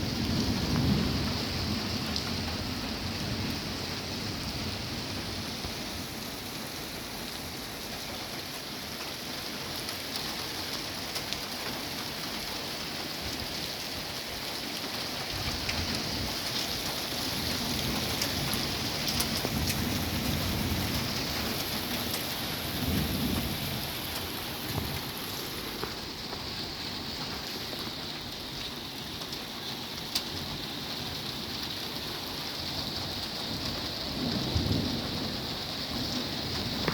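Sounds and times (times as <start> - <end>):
thunder rumbling: 0.0 - 6.2, 15.4 - 26.6, 33.4 - 36.9
steady rain falling: 0.0 - 36.9.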